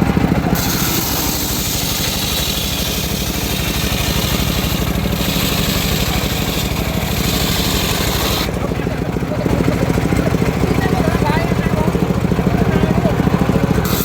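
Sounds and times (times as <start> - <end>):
sawmill engine pulsing: 0.0 - 14.0
saw blade hissing through log: 0.5 - 8.6.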